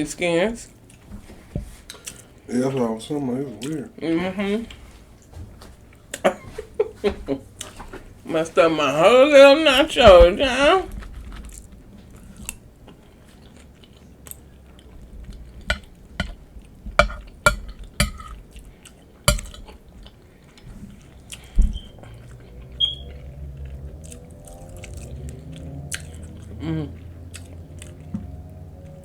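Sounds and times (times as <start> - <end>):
chewing: 0.7 - 3.9, 4.7 - 8.2, 10.9 - 29.0
utensil clicking against dish: 15.6 - 16.4, 17.0 - 18.4, 19.3 - 19.8.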